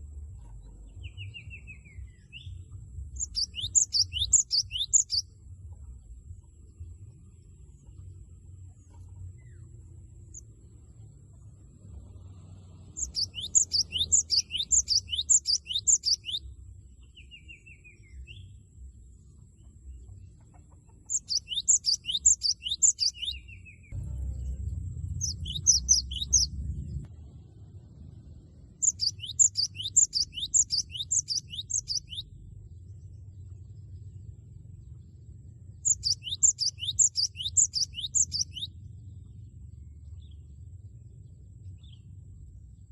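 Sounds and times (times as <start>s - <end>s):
bird singing rapid high notes: 3.2s - 5.4s, 12.9s - 16.5s, 21.1s - 27.0s, 28.7s - 32.3s, 35.8s - 38.7s.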